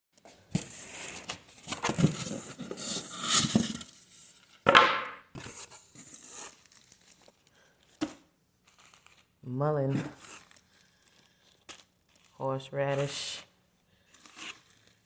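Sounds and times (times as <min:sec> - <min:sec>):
packaging torn and crinkled: 0:06.5 - 0:07.7, 0:08.7 - 0:09.4, 0:10.2 - 0:12.4.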